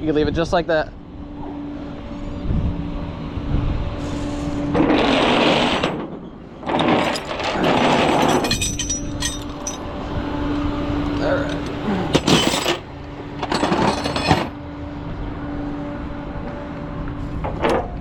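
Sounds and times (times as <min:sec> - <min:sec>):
tow truck equipment hum: 0:01.0 - 0:18.0
mechanical grinding: 0:04.8 - 0:09.8.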